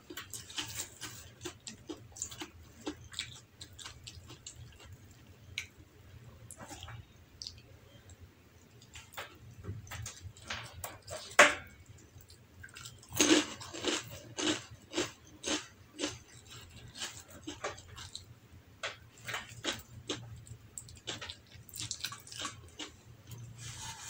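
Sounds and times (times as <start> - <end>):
crunchy chewing of a cracker: 0.0 - 5.7, 12.0 - 18.3, 19.1 - 24.0.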